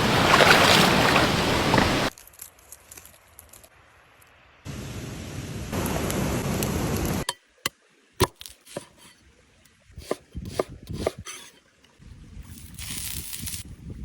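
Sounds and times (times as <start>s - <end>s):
knife chopping on cutting board: 10.0s - 11.5s.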